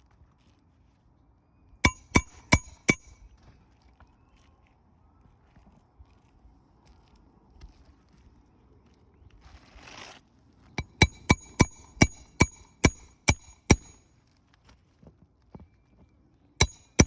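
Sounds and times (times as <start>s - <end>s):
hammer striking metal tool: 1.8s - 3.2s, 10.8s - 14.0s, 16.6s - 17.0s
brief scrape: 9.6s - 10.2s.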